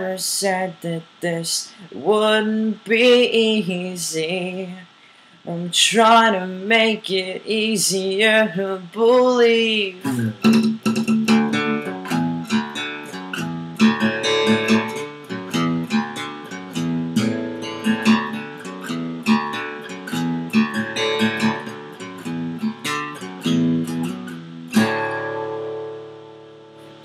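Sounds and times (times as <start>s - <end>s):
acoustic guitar strumming: 5.8s - 27.0s.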